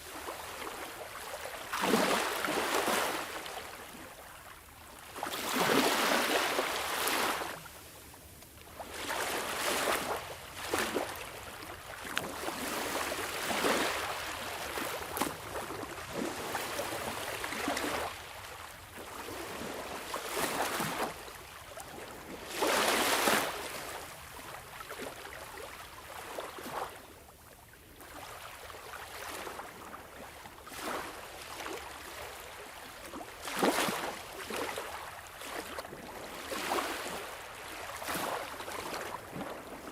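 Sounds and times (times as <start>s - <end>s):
sea waves breaking: 0.1s - 4.1s, 5.0s - 7.7s, 8.7s - 18.2s, 33.4s - 39.9s.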